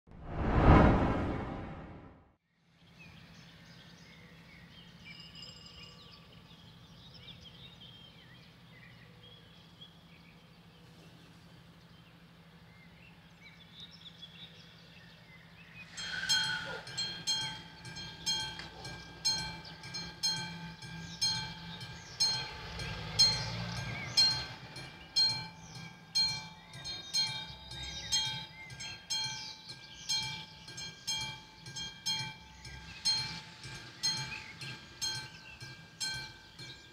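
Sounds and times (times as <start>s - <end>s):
level-crossing warning bell ringing: 15.9s - 36.9s.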